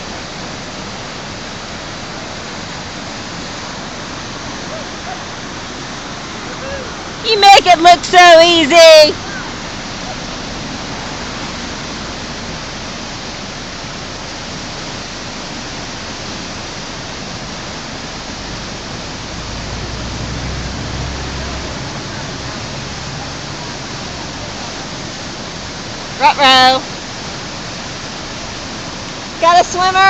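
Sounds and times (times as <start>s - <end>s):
whitewater rushing: 0.0s - 30.0s
low rumble: 16.9s - 25.8s.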